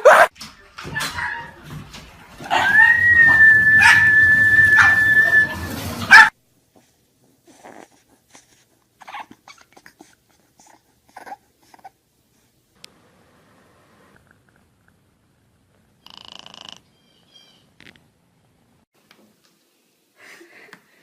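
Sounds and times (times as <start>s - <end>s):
dog whining: 2.5s - 6.3s, 9.0s - 10.1s.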